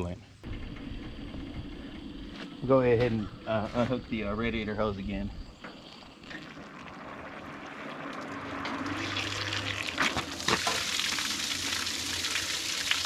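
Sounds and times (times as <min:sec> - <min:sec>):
water splashing from radiator hose: 0:06.2 - 0:13.0.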